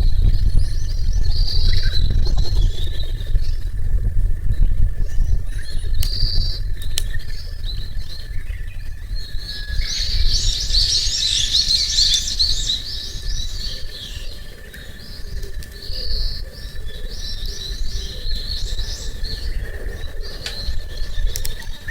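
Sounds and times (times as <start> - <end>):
small songbirds chirping: 0.0 - 21.9
steady low rumble: 0.0 - 21.9
sharp clicks: 21.3 - 21.7.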